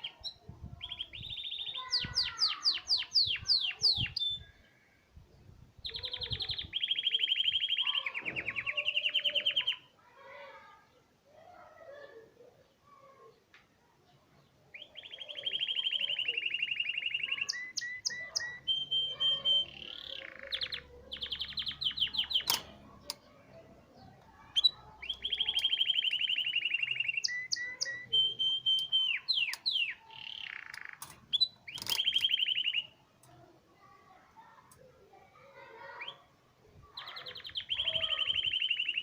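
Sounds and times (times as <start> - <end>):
canary singing: 0.0 - 4.5, 5.8 - 9.9, 14.7 - 33.5, 37.0 - 39.0.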